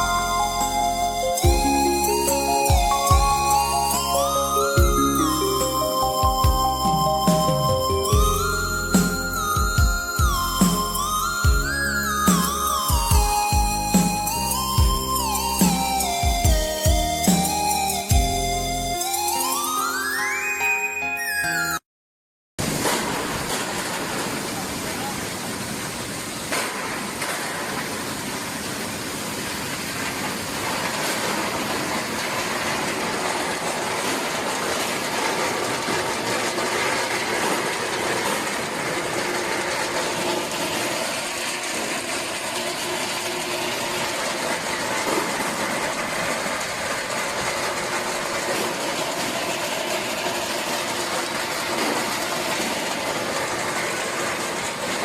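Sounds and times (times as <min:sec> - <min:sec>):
brush rollers whirring: 0:30.8 - 0:55.0.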